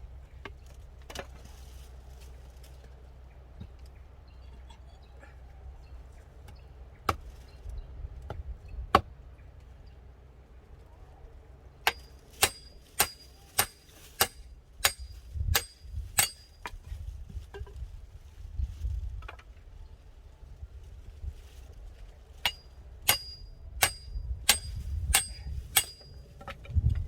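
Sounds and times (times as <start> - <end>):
metal tool striking wood: 11.9 - 16.5, 22.4 - 26.2.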